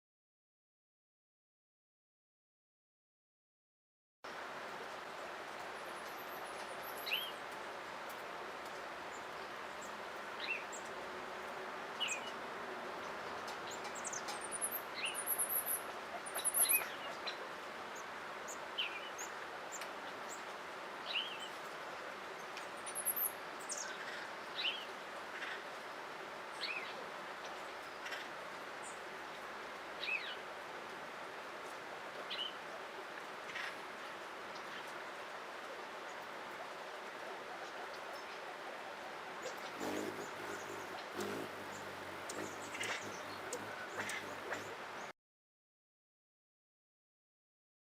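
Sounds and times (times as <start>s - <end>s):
background hiss: 4.3s - 45.1s
birds chirping: 39.4s - 45.1s
high thin bird trills: 39.7s - 44.8s.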